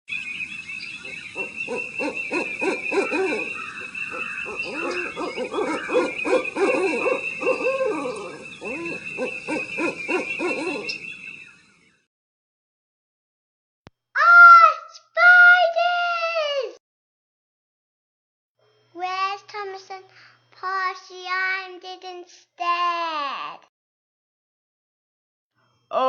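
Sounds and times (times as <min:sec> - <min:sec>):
owl hooting: 0:00.1 - 0:11.6.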